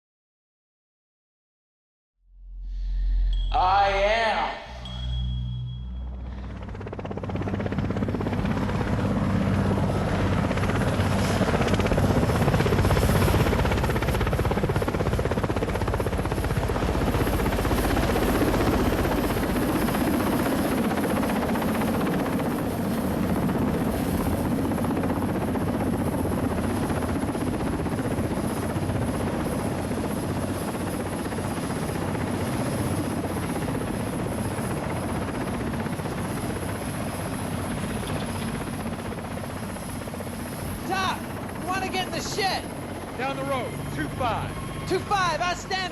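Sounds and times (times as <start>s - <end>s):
high whine: 2.3s - 7.3s
helicopter rotor and engine: 3.3s - 45.9s.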